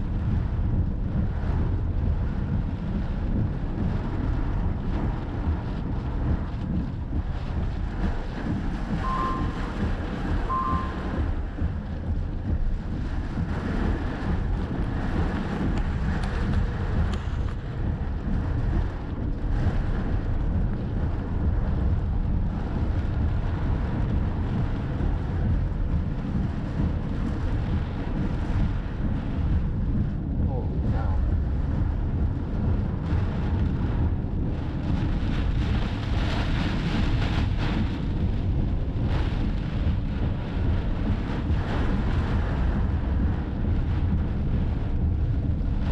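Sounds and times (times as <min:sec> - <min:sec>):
wind buffeting microphone: 0:00.0 - 0:45.9
short beeps: 0:09.0 - 0:09.8, 0:10.5 - 0:11.2.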